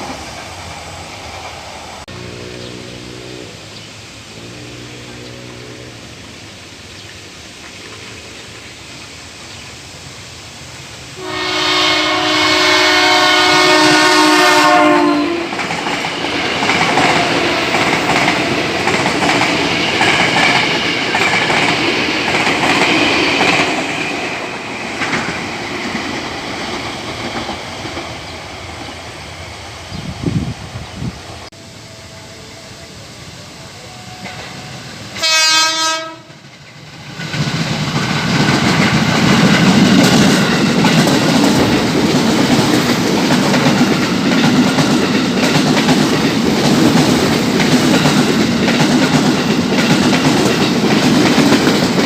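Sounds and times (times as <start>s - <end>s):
train running past: 0.0s - 52.0s
electric train horn: 2.1s - 6.4s, 11.2s - 15.6s, 31.6s - 36.4s.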